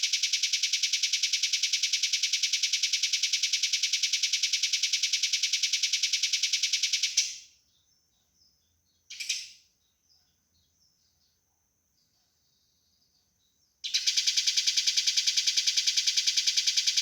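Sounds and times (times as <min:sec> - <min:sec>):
sparrows harsh chattering calls: 0:09.1 - 0:09.6.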